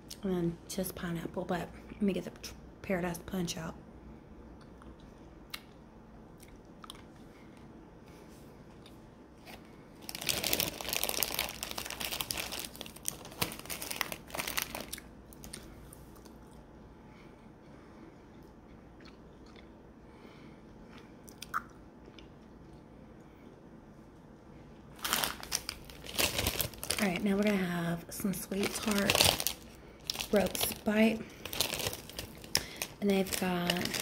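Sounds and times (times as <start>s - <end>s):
quiet chewing: 6.4s - 7.7s, 18.2s - 19.8s
candy crunching: 9.4s - 16.6s, 24.9s - 34.0s.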